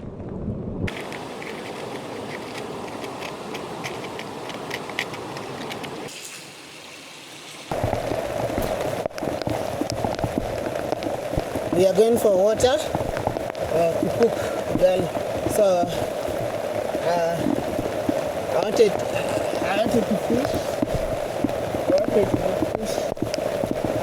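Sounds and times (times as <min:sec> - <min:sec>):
heavy rain hiss: 0:00.9 - 0:24.0
raindrops ticking: 0:07.7 - 0:24.0.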